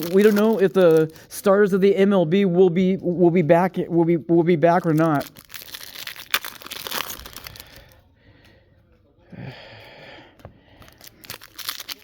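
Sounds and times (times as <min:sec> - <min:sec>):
foil wrapper crackling: 0:00.0 - 0:01.2, 0:04.8 - 0:08.0, 0:10.9 - 0:12.0
foil wrapper tearing: 0:00.0 - 0:01.2, 0:04.8 - 0:07.9, 0:11.0 - 0:12.0.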